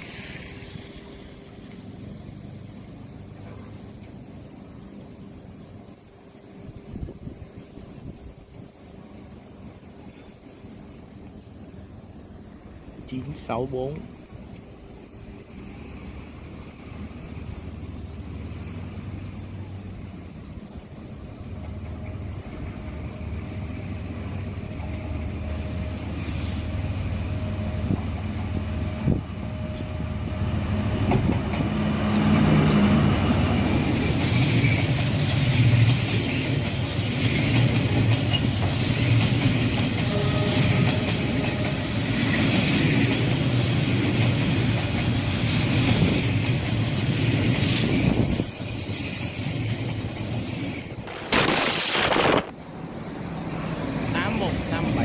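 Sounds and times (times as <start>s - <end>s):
train wheels on rails: 0.0s - 55.0s
locomotive engine humming: 18.2s - 48.3s.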